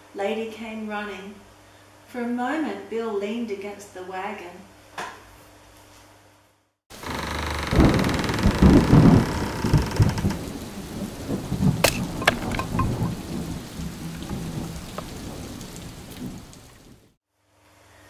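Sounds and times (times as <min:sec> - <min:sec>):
heavy rain: 0:06.9 - 0:17.2
thunder rumbling: 0:07.0 - 0:17.2
sharp thunder cracks: 0:07.7 - 0:17.2.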